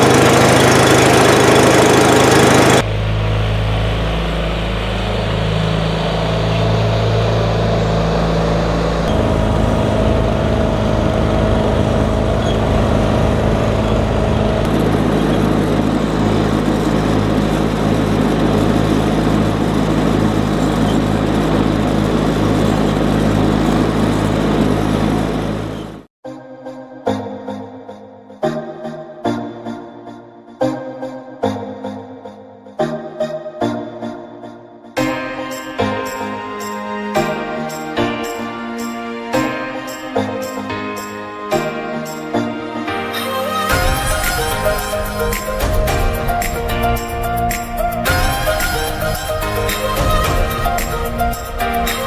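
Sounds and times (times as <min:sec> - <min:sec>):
engine idling: 0:00.0 - 0:26.1, 0:43.7 - 0:52.0.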